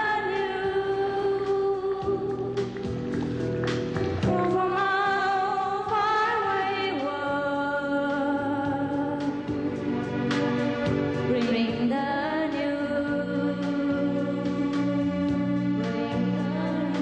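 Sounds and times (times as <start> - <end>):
sustained instrumental accompaniment: 0.0 - 7.1, 8.8 - 17.0.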